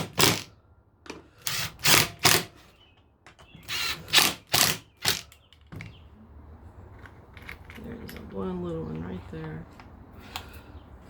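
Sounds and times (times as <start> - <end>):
power drill driving screws: 0.0 - 0.5, 1.4 - 2.5, 3.6 - 5.2.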